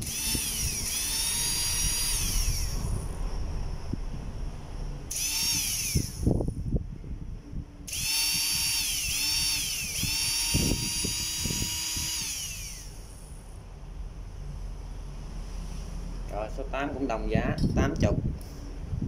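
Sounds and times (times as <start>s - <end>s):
electric motor whining: 0.0s - 3.1s, 5.1s - 6.6s, 7.9s - 13.4s.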